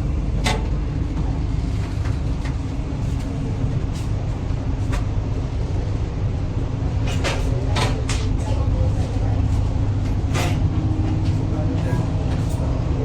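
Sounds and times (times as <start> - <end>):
train carriage rumble: 0.0 - 13.0.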